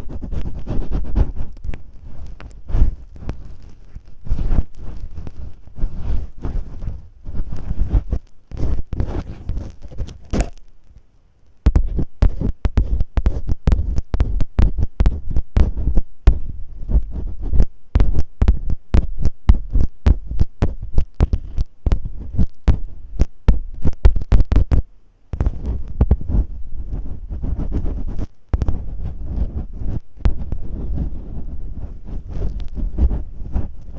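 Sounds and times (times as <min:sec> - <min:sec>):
tape scratching on microphone: 0:00.0 - 0:33.9
deep thumps: 0:04.2 - 0:10.6, 0:11.6 - 0:33.8.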